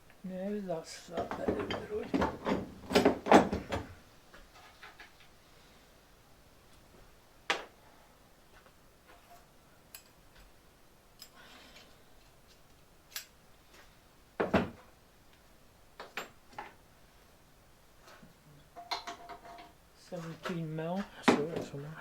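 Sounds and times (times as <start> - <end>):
hand tools knocking and clinking: 1.1 - 3.8, 18.8 - 19.8.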